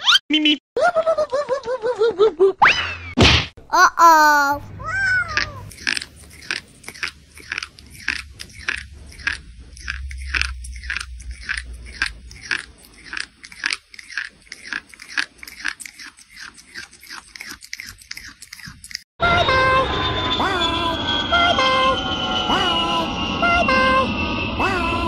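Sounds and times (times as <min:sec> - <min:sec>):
crisp food crunching: 0:05.7 - 0:19.0.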